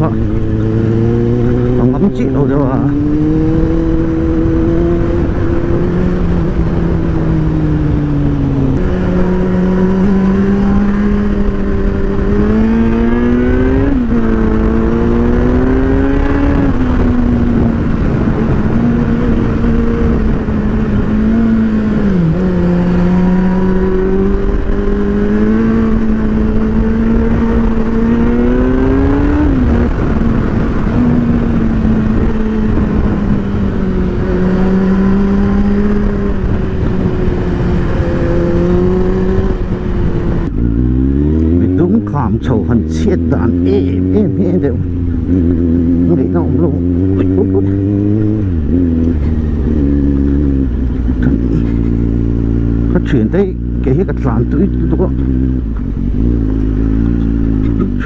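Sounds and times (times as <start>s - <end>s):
motorcycle engine running: 0.0s - 58.0s
wind noise: 0.0s - 58.0s.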